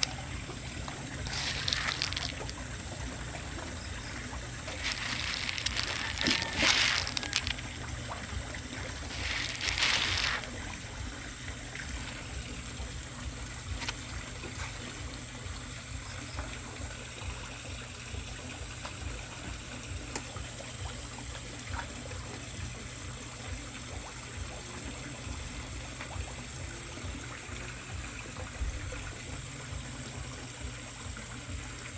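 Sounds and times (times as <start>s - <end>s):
rush of water: 0.0s - 15.9s
low steady rumble: 0.0s - 16.6s
water trickling: 0.0s - 31.9s.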